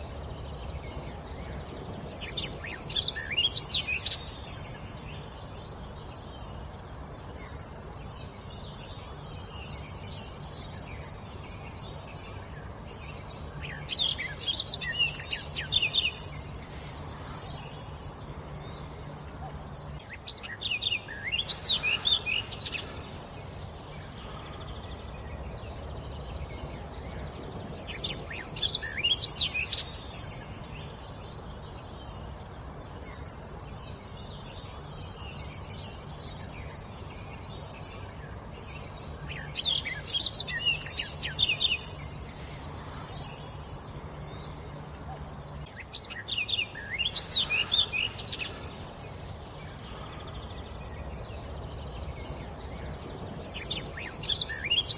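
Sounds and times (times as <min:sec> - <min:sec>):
songbird singing: 0:00.0 - 0:54.9
steady background hiss: 0:00.0 - 0:54.9.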